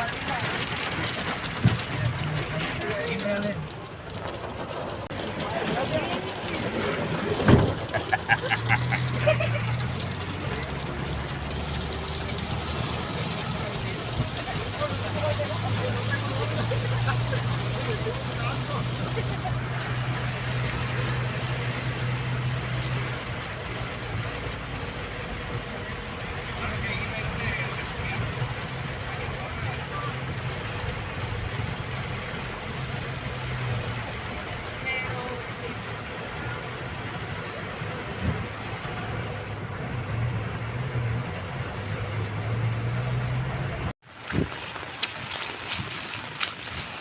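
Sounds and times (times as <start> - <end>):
low engine hum: 0.0 - 47.0
rain and road noise: 0.0 - 47.0.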